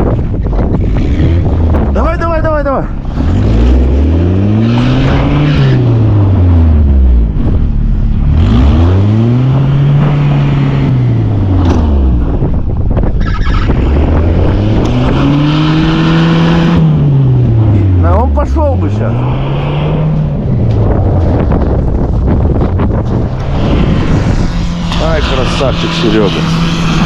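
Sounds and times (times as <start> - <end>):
engine revving: 0.6 - 27.0
loud rushing noise: 18.6 - 27.0.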